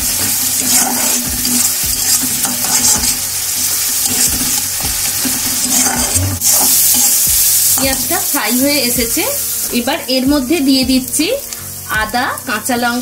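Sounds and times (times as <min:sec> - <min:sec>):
spatula scraping a pan: 0:00.0 - 0:08.0
onion paste sizzling in oil: 0:00.0 - 0:13.0.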